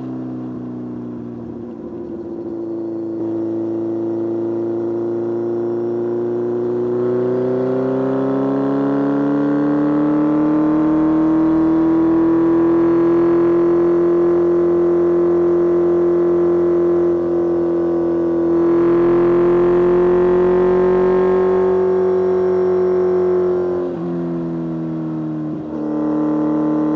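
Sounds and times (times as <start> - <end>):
motorcycle engine accelerating: 0.0 - 26.9.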